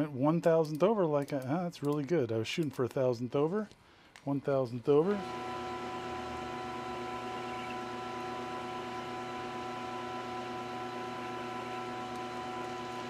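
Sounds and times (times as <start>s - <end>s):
metal lathe humming and whining: 5.0s - 13.0s.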